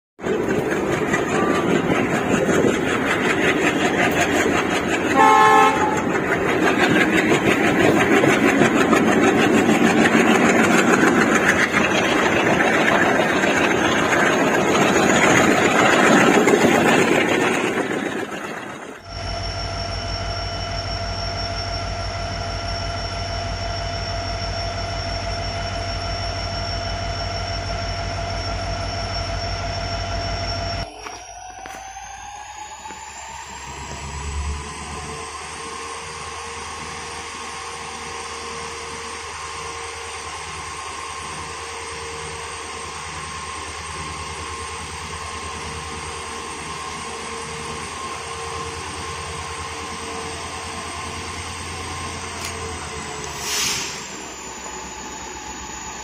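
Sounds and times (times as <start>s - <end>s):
train wheels and locomotive rumble: 0.2s - 56.0s
train horn toot: 5.1s - 6.2s
steady held tone: 19.0s - 33.9s.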